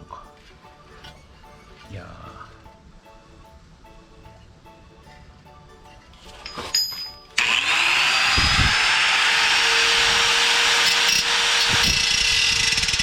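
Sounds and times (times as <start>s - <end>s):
angle grinder cutting sheet steel: 6.6s - 13.0s.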